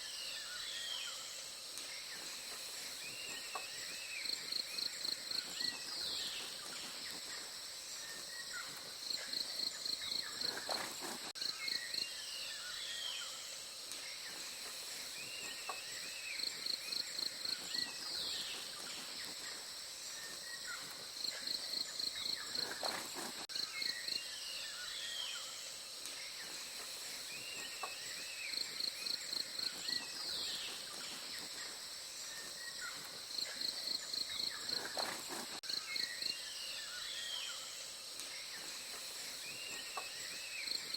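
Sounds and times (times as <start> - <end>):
bird calls: 0.0 - 13.4, 14.1 - 25.5, 26.1 - 37.7
high insect drone: 0.0 - 40.9.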